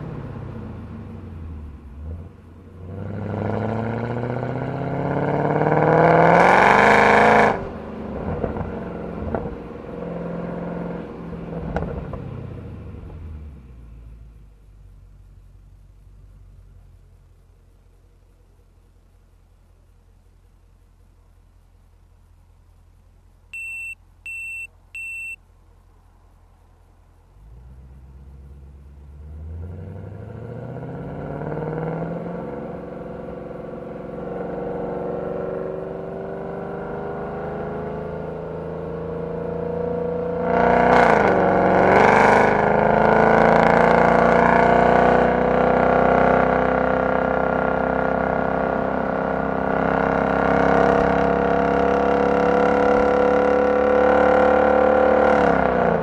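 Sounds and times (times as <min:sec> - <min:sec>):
car engine accelerating hard: 0:00.0 - 0:14.5, 0:27.3 - 0:56.0
short electronic beeps: 0:23.5 - 0:25.4.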